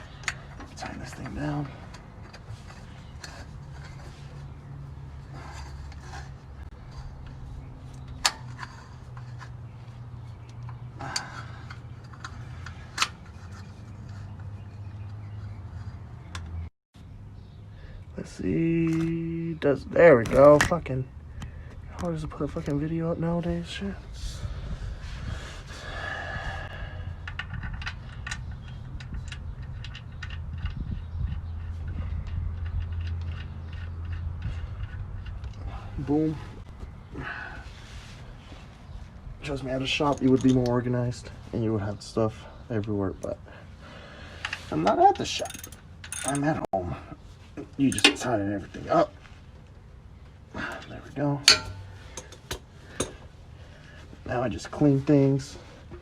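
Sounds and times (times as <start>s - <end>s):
metal tools clinking and rattling: 0.0s - 16.4s, 27.2s - 36.3s, 39.4s - 41.9s, 44.4s - 49.1s, 50.6s - 53.3s
oil filter handling noises: 0.0s - 16.6s, 27.0s - 37.0s, 37.8s - 56.0s.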